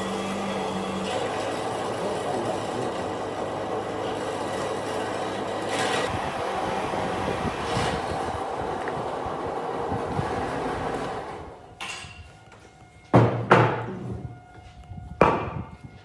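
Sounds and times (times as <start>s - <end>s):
power tool working wood: 0.0s - 11.6s.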